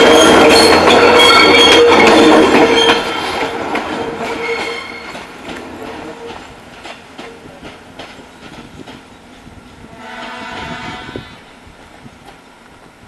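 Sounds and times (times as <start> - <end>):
wheels squealing on rails: 0.0 - 12.7
diesel railcar passing: 0.0 - 13.0.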